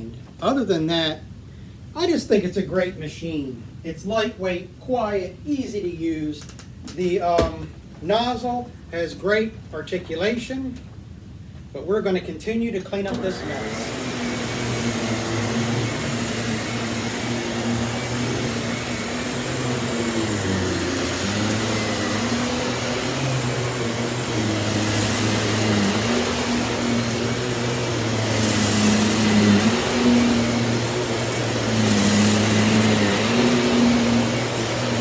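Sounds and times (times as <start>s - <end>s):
stick vacuum motor hum: 13.0s - 35.0s.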